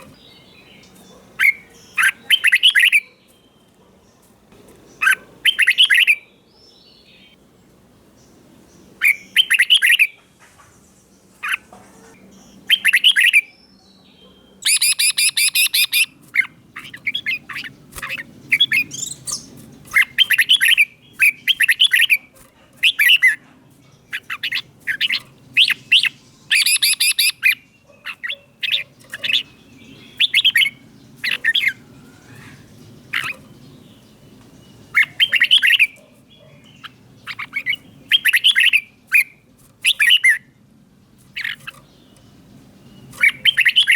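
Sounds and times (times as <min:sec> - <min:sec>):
bird whistled song: 0:00.0 - 0:03.8, 0:05.0 - 0:07.4, 0:09.0 - 0:10.2, 0:12.4 - 0:22.2, 0:24.1 - 0:33.4, 0:34.8 - 0:40.5, 0:42.8 - 0:43.9
bird harsh chattering: 0:01.4 - 0:03.1, 0:05.0 - 0:06.2, 0:14.6 - 0:23.4, 0:24.1 - 0:33.5, 0:34.9 - 0:40.4, 0:41.3 - 0:41.9, 0:43.1 - 0:43.9.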